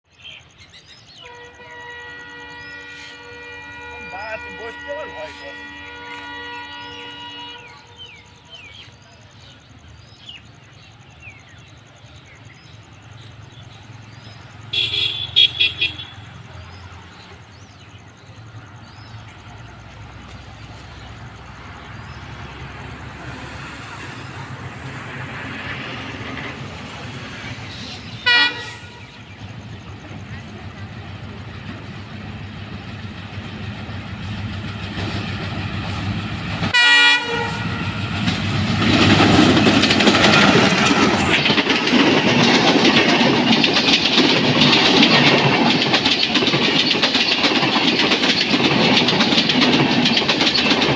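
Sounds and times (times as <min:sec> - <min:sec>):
horn toots: 0:01.2 - 0:08.1, 0:14.7 - 0:16.4, 0:27.9 - 0:29.2, 0:36.7 - 0:38.0
locomotive engine rumble: 0:01.2 - 0:50.9
wheel clatter: 0:38.2 - 0:50.9.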